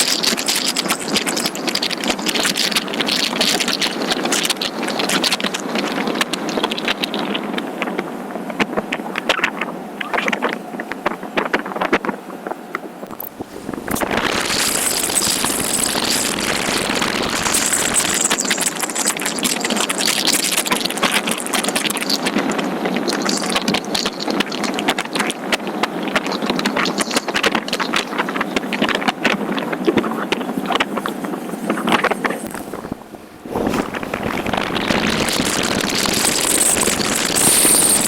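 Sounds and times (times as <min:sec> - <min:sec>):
loud steady rush of noise: 0:12.1 - 0:24.2, 0:31.0 - 0:38.0.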